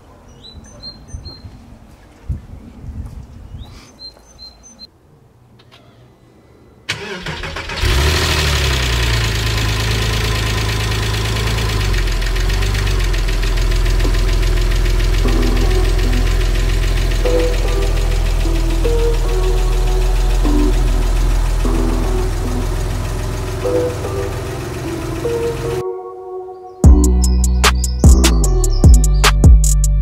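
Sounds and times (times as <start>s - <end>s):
bird chirps: 0.0s - 1.6s, 3.5s - 4.9s, 26.5s - 29.5s
car engine starting and idling: 6.9s - 25.8s.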